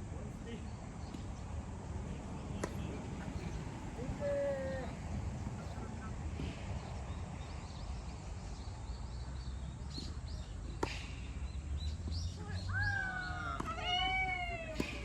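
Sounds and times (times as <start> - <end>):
tennis racket striking ball: 10.7 - 11.4, 14.7 - 15.0.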